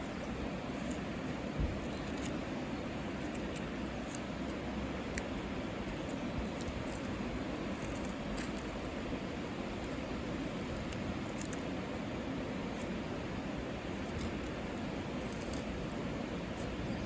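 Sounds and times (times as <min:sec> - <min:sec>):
faint crackles and ticks: 0:03.1 - 0:11.8, 0:14.0 - 0:15.8.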